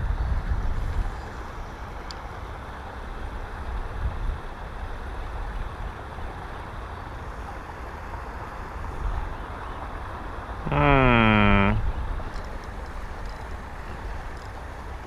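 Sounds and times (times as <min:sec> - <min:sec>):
wind buffeting microphone: 0:00.0 - 0:01.4.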